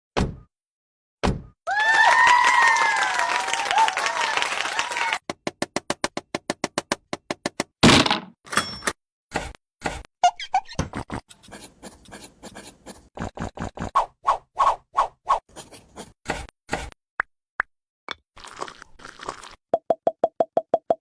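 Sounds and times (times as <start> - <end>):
irregular taps and knocks: 5.2 - 7.8.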